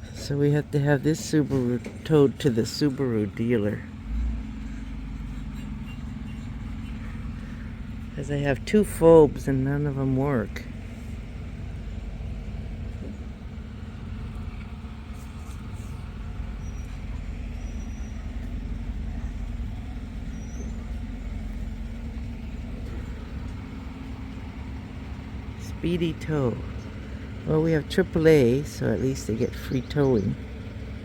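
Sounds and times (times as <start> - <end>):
truck engine droning: 0.0 - 31.0.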